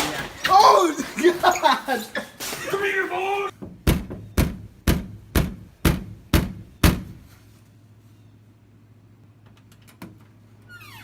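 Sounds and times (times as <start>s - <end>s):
heavy knocking on a door: 3.6s - 7.2s.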